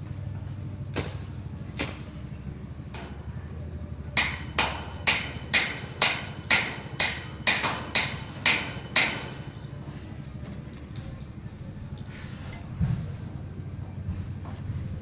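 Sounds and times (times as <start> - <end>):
hammer striking with ring: 4.2 - 9.9.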